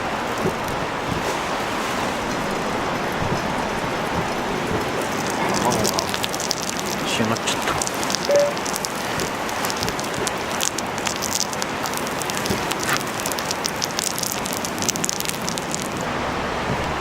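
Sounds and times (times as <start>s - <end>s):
sizzling and crackling wood fire: 0.0s - 17.0s
small sharp pops: 3.0s - 16.0s.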